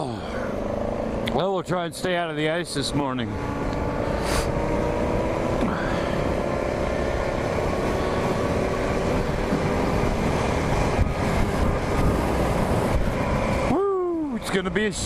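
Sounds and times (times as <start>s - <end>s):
motorcycle engine running: 0.0s - 13.8s
wind buffeting microphone: 7.0s - 15.0s.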